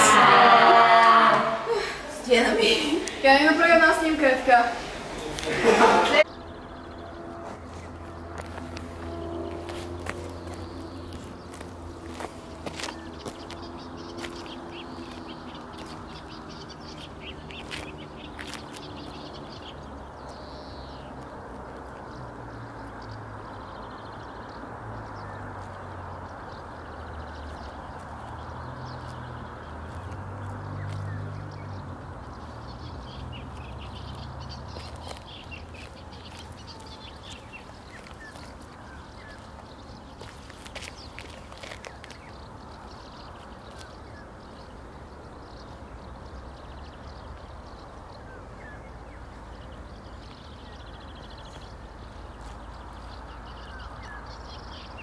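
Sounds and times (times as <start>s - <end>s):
birds chirping: 0.0s - 55.0s
steady rushing noise: 1.4s - 6.3s.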